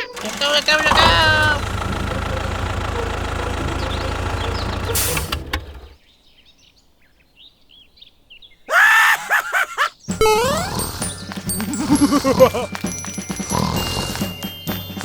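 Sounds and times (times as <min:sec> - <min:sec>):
small engine running: 0:00.0 - 0:06.0, 0:10.7 - 0:15.0
birds chirping faintly: 0:00.0 - 0:15.0
loud voice-like cry: 0:08.7 - 0:10.9.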